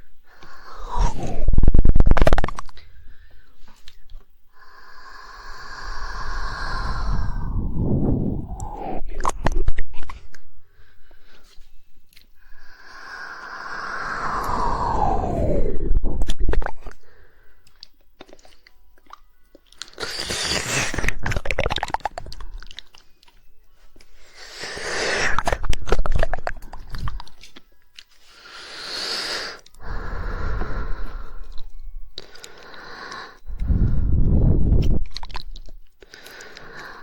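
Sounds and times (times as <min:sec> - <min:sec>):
wet tongue clicking: 0:17.6 - 0:23.4, 0:25.3 - 0:28.1, 0:34.8 - 0:37.0.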